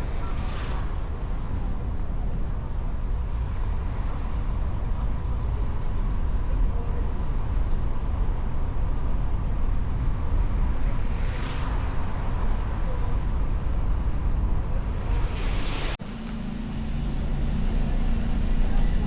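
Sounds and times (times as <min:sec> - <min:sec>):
motorcycle road noise: 0:00.0 - 0:19.0
wind rumble on microphone: 0:00.0 - 0:19.0
hiss: 0:14.7 - 0:18.2.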